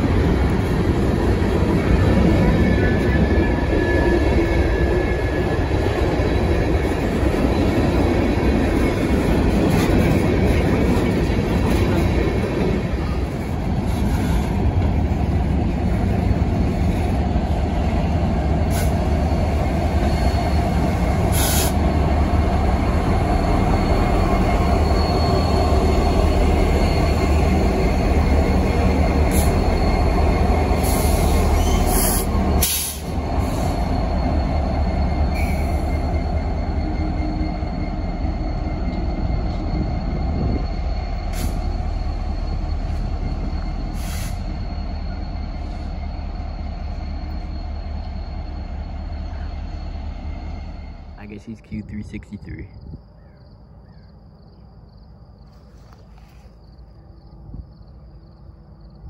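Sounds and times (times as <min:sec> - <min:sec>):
steel wheels rumbling on rail: 0:00.0 - 0:51.6
diesel locomotive drone: 0:00.0 - 0:59.0
thin steady wheel squeals: 0:00.6 - 0:51.4, 0:53.0 - 0:59.0.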